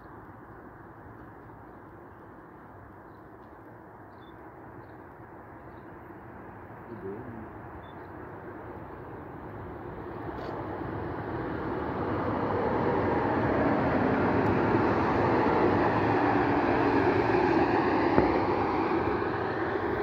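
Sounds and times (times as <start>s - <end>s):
passenger train passing: 8.3s - 20.0s.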